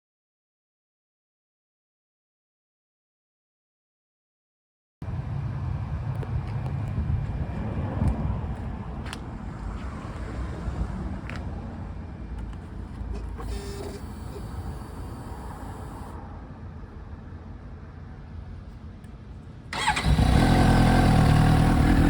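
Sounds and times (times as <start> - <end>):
motorcycle engine running: 19.8 - 22.0.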